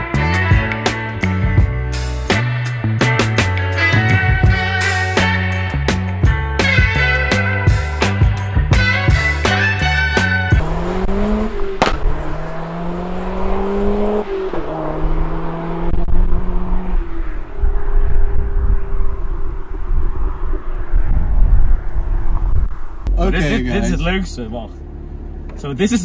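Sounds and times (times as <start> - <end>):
music: 0.0 - 10.6
car engine accelerating: 7.9 - 26.0.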